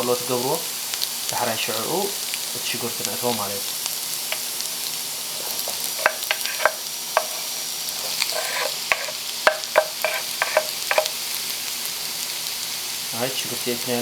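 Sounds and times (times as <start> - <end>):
food sizzling in a frying pan: 0.0 - 14.0
utensil scraping against pan: 4.3 - 11.2.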